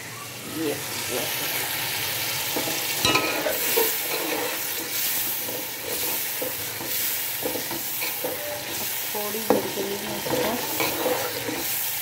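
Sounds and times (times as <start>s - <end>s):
food sizzling in a pot: 0.0s - 12.0s
metal spoon scraping pot: 2.5s - 11.8s.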